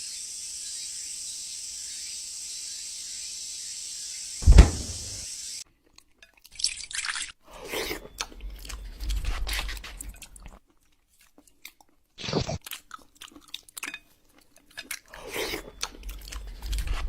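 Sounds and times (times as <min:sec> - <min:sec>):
cat chewing food: 0:08.2 - 0:17.0.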